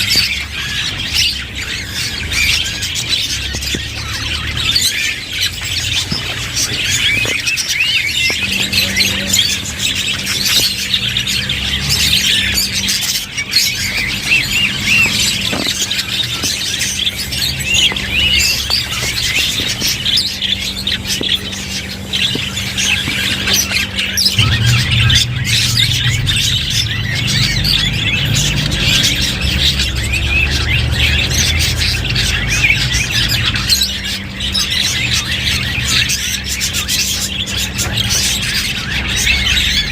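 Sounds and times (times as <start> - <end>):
budgerigars chattering: 0.0 - 39.9
low steady hum: 19.2 - 30.5.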